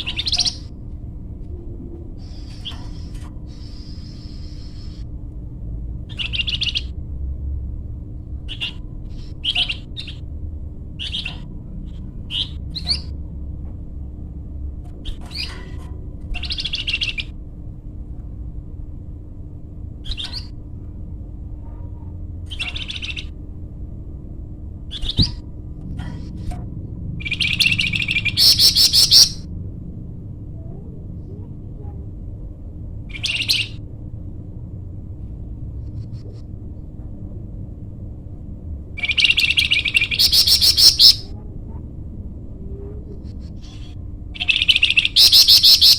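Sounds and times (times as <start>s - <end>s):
low rumble: 0.0s - 3.6s
faint hum: 0.0s - 45.9s
songbird chirping and whistling: 24.9s - 25.4s, 27.2s - 29.4s, 33.1s - 33.8s, 39.0s - 41.3s, 43.6s - 45.9s.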